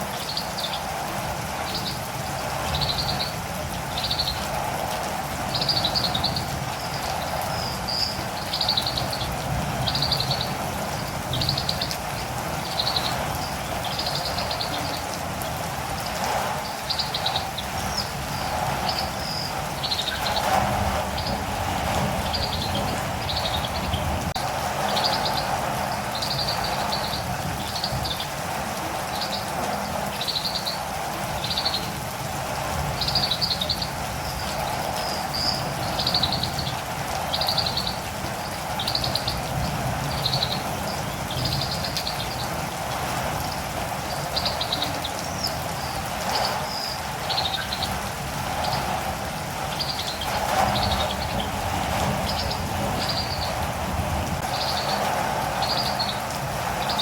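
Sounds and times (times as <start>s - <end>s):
rain hissing: 0.0s - 57.0s.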